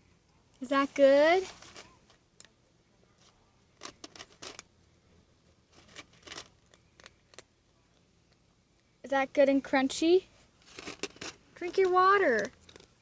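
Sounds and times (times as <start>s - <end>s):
cat crunching dry kibble: 3.2s - 4.8s, 5.7s - 8.4s, 10.6s - 13.0s.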